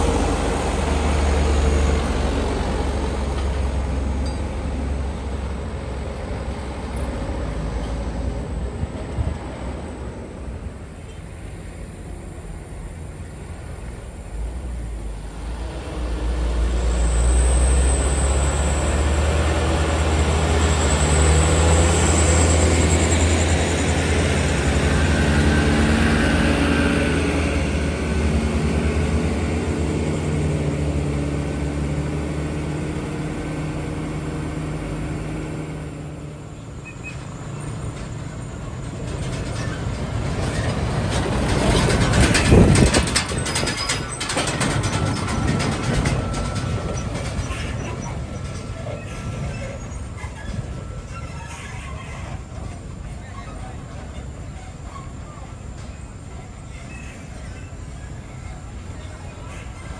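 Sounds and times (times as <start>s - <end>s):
diesel truck passing: 0.0s - 12.8s, 13.4s - 51.2s
vehicle approaching loudly: 13.7s - 51.2s.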